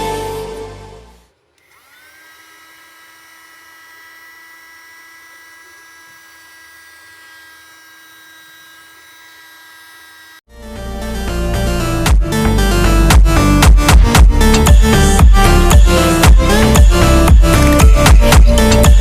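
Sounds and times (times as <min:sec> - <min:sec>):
mini vacuum motor whining: 0:01.5 - 0:10.5.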